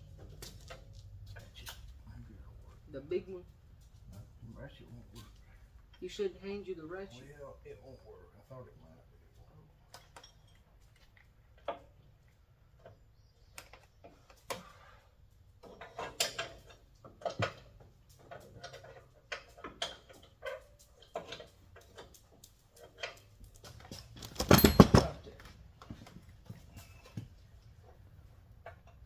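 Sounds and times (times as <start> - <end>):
hand tools clanking on metal: 15.6 - 25.4.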